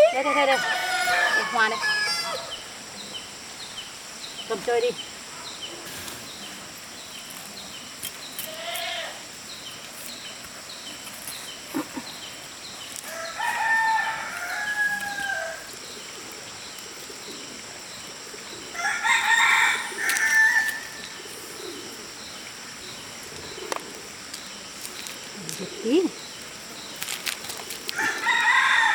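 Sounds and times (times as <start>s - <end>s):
rooster crowing: 0.2s - 2.7s, 13.0s - 15.8s, 18.7s - 21.1s, 27.9s - 28.9s.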